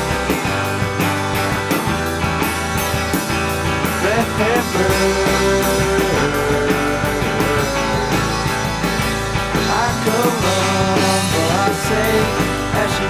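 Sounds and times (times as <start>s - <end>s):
rock band playing: 0.0s - 13.0s
person singing: 3.9s - 8.9s, 9.6s - 13.0s.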